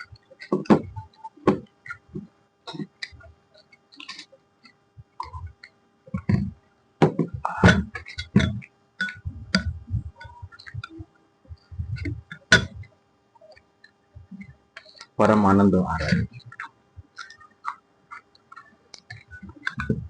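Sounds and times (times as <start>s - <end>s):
faint steady hum: 0.0s - 20.0s
close chewing sounds: 9.0s - 15.2s, 15.9s - 20.0s.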